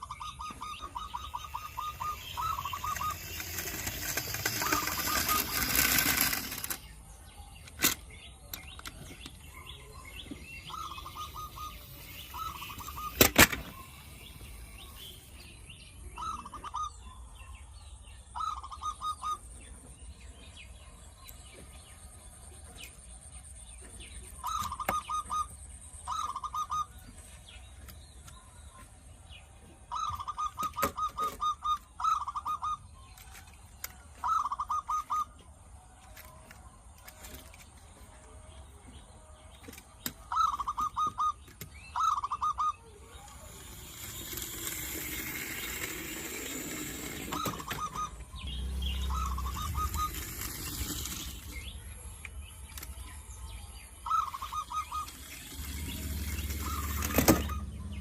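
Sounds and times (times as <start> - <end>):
bird chirping: 0.0 - 58.0.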